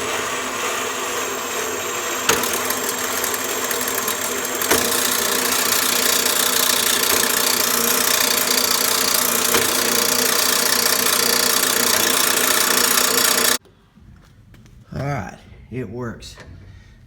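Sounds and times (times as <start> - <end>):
bandsaw cutting: 0.0 - 13.6.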